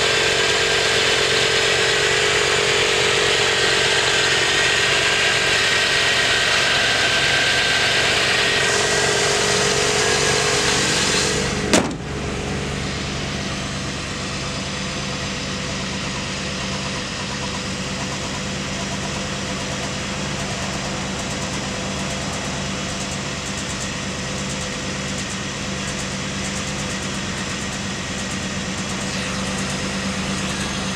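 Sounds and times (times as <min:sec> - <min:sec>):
car engine idling: 0:00.0 - 0:30.9
hiss: 0:08.6 - 0:11.6.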